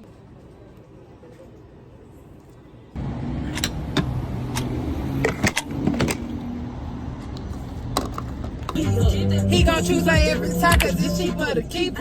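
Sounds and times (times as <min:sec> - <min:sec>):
car engine rumble: 0:03.0 - 0:12.0.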